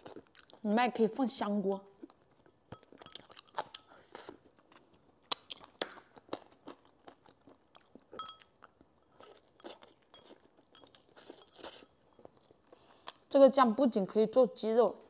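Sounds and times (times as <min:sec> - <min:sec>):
person chewing and biting: 0:00.0 - 0:00.6, 0:02.0 - 0:13.3
wet mouth clicks and smacks: 0:05.2 - 0:06.2.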